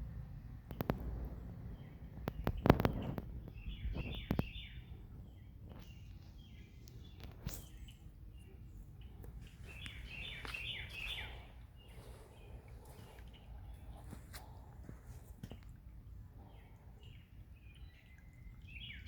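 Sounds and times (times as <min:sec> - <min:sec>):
low outdoor rumble: 0:00.0 - 0:19.0
sharp clicks: 0:00.7 - 0:01.4, 0:02.2 - 0:04.5
songbird falling chirps: 0:01.8 - 0:14.5.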